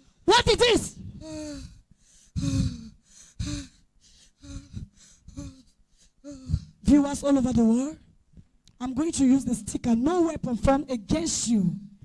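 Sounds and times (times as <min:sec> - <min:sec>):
woman moaning: 0:01.0 - 0:01.8, 0:02.4 - 0:03.8, 0:04.4 - 0:06.8.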